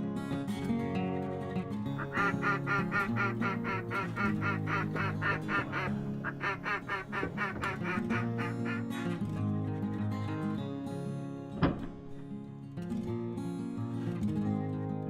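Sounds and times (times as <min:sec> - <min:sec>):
acoustic guitar music: 0:00.0 - 0:15.0
duck quacks: 0:02.0 - 0:09.1.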